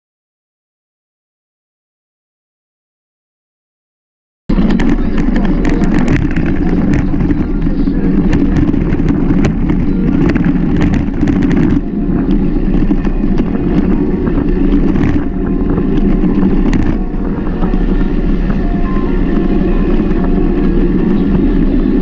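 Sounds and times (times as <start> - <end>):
bike rattling over rough ground: 4.5 - 22.0
wind rumbling on microphone: 4.5 - 22.0.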